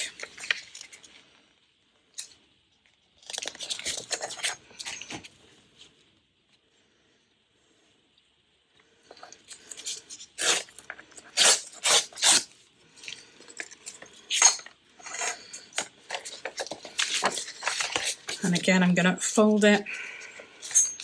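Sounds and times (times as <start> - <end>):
paper rustling and crinkling: 3.2 - 6.0, 9.2 - 18.6.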